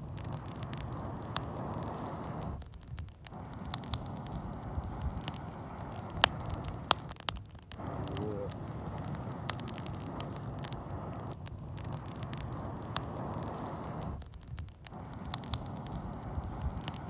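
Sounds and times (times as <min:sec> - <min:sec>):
wood fire crackling and popping: 0:00.0 - 0:17.0
air blown through pipe: 0:07.8 - 0:08.8.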